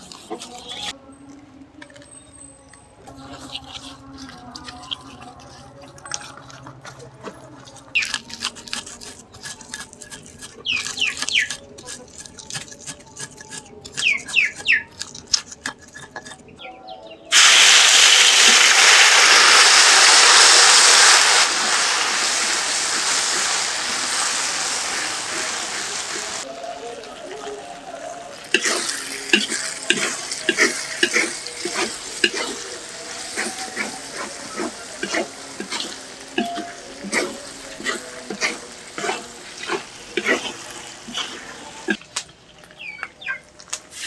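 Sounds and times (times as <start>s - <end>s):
spice paste sizzling in oil: 17.3s - 42.1s.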